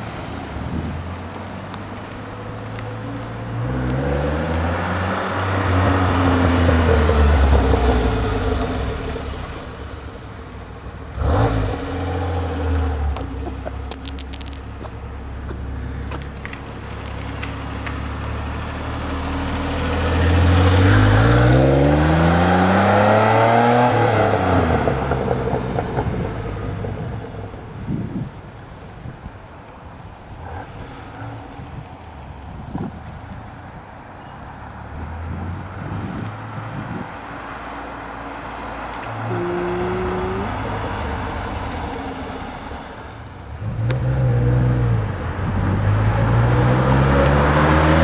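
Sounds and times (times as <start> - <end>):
brief clatter: 13.9 - 15.0.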